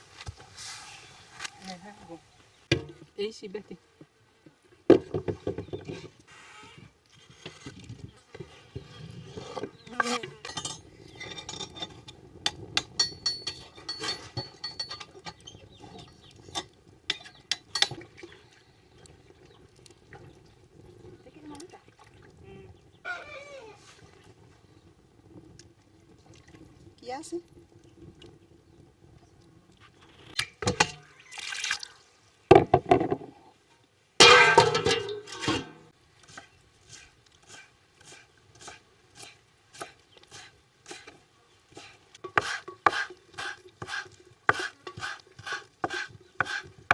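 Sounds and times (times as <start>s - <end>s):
pots and utensils clinking: 10.4s - 18.0s, 34.2s - 35.9s
water pouring and splashing: 17.7s - 22.4s, 23.9s - 32.5s, 34.2s - 41.2s, 41.8s - 46.9s.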